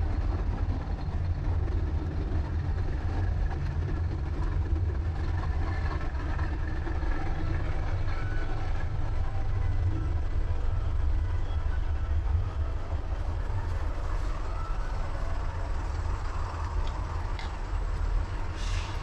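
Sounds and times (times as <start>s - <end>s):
low rumble of vehicle noise: 0.0s - 19.0s
faint clicks: 16.6s - 18.0s.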